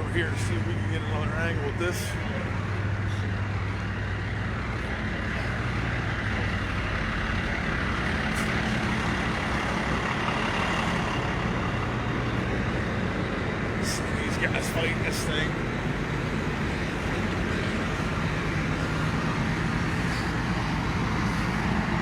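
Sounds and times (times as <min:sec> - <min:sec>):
continuous rushing noise: 0:00.0 - 0:22.0
heavy vehicle engine running: 0:00.0 - 0:22.0.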